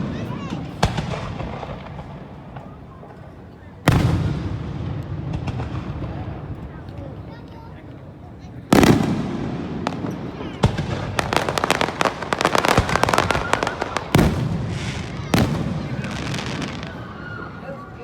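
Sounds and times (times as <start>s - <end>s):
firework booms: 0.0s - 2.8s, 3.8s - 6.6s, 8.7s - 17.2s.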